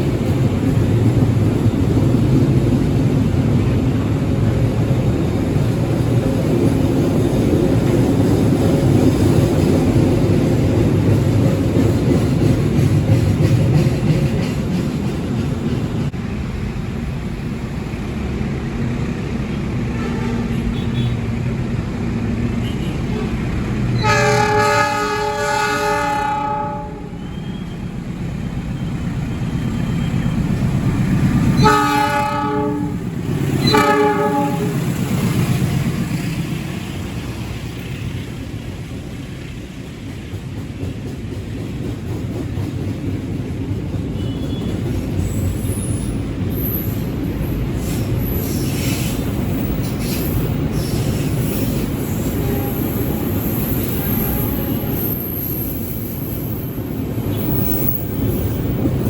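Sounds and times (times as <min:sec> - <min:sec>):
train rumbling: 0:00.0 - 0:59.0
train horn blasts: 0:19.9 - 0:21.1, 0:24.0 - 0:27.7, 0:31.6 - 0:34.9, 0:52.2 - 0:55.1.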